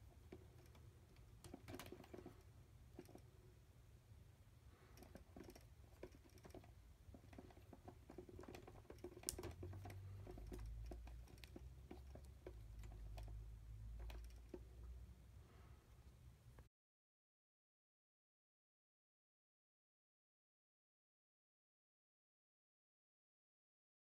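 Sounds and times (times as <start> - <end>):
low steady hum: 0.0 - 16.7
light clicks and taps: 4.9 - 14.7.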